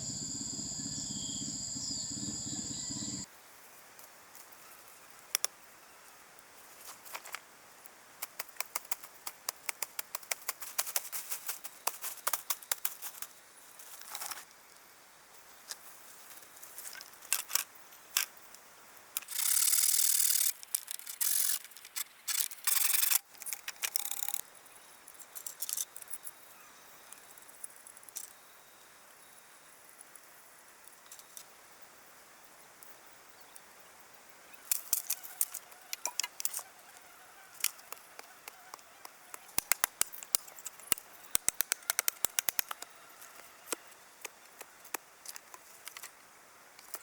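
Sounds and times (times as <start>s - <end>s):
quick irregular clicks: 37.6s - 42.9s.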